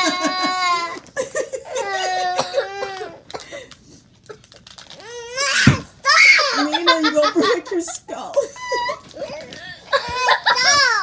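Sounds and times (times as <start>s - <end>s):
children laughing and squealing: 0.0s - 3.2s, 5.5s - 7.7s, 8.5s - 11.0s.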